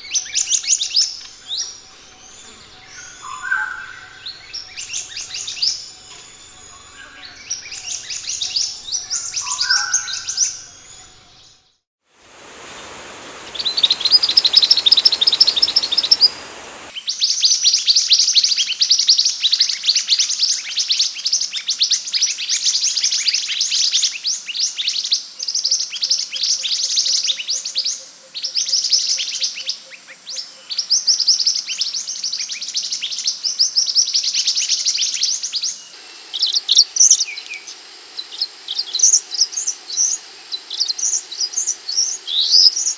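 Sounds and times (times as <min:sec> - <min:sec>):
bird trills: 0:00.0 - 0:11.4, 0:12.3 - 0:16.9
hiss: 0:12.1 - 0:17.0, 0:35.4 - 0:42.9
bird calling high descending notes: 0:12.3 - 0:16.9.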